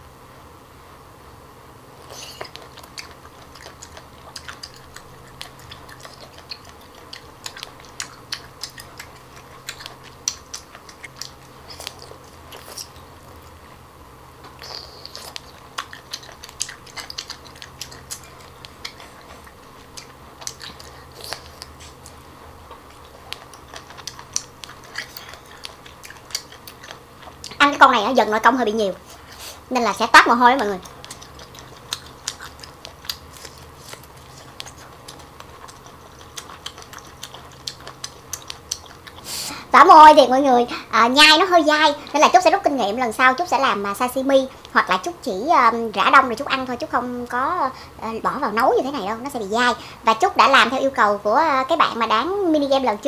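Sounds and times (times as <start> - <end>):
chewing mouth clicks and smacks: 2.0 - 13.6, 14.4 - 27.8, 30.6 - 39.5.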